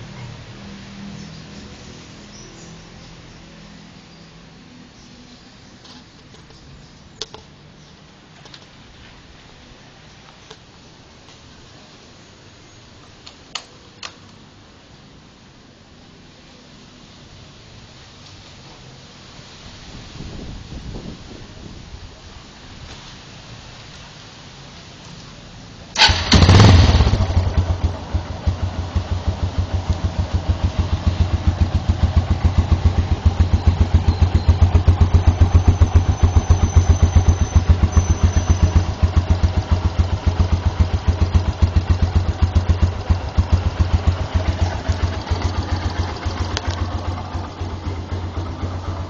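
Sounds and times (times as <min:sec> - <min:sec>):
motorcycle engine idling: 0:25.9 - 0:49.0
motorcycle engine starting: 0:25.9 - 0:49.0.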